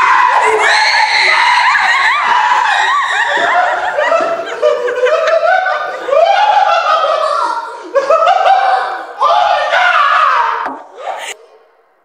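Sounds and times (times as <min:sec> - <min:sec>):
person laughing hysterically: 0:01.6 - 0:09.0.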